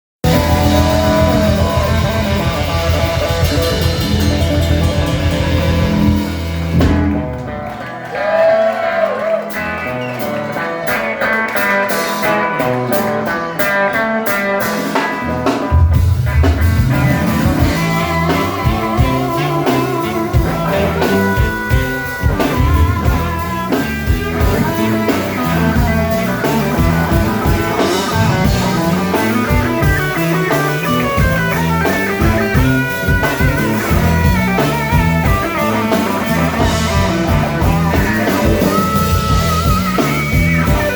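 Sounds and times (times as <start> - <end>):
bass and drums: 0.2 - 8.6, 9.2 - 40.9
electric guitar: 0.2 - 40.9.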